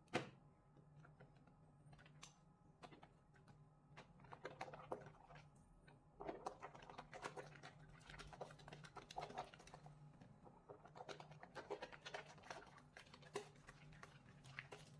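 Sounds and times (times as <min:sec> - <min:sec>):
soap lather squishing: 0:04.0 - 0:05.6, 0:06.2 - 0:14.9.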